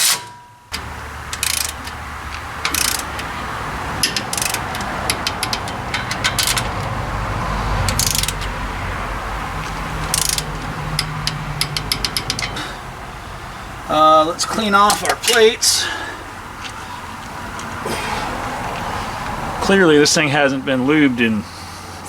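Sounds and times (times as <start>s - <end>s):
hand ratchet clicking: 0.8s - 12.8s, 14.4s - 15.5s.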